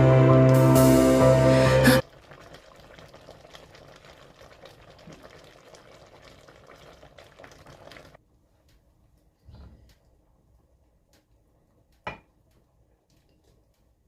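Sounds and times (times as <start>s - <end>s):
soup simmering in a pot: 2.0s - 9.3s.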